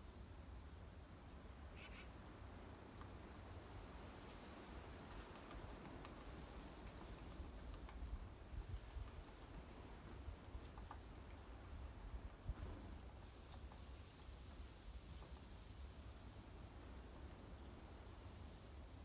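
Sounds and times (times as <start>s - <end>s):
small birds chirping: 1.3s - 2.2s, 6.2s - 11.3s.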